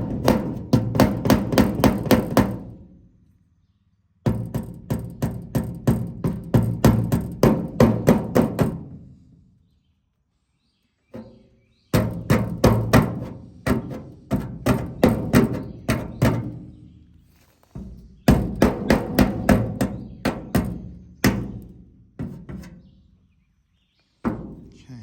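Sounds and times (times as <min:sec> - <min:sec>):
hammer tapping on metal: 0:17.8 - 0:22.7.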